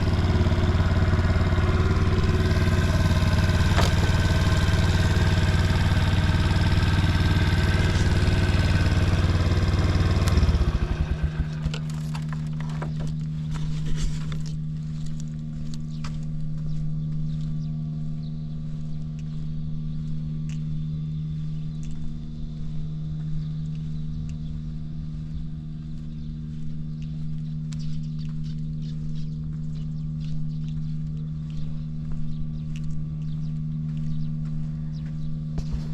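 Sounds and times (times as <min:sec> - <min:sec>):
moped engine idling: 0:00.0 - 0:13.7
brief engine clatter: 0:00.0 - 0:14.6, 0:27.0 - 0:35.9.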